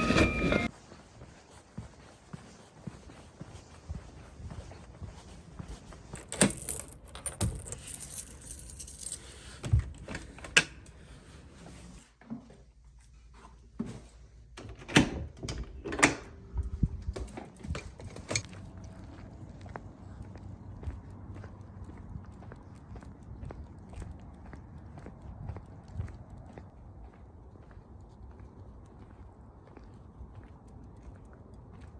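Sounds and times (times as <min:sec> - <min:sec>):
small hard objects jangling: 0:06.1 - 0:09.6.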